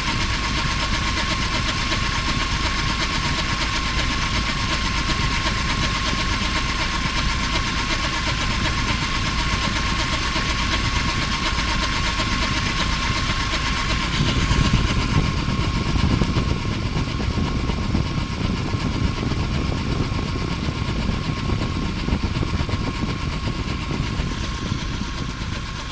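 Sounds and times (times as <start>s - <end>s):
petrol engine running: 0.0s - 25.9s.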